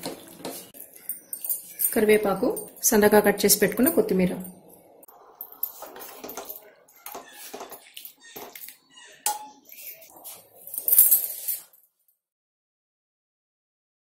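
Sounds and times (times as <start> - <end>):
metal utensils scraping a pot: 5.1 - 11.8.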